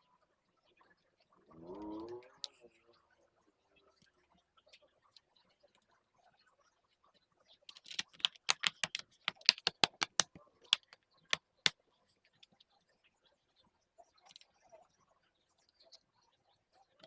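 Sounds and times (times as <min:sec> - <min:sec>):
plastic clicks of laptop: 0:07.8 - 0:11.0.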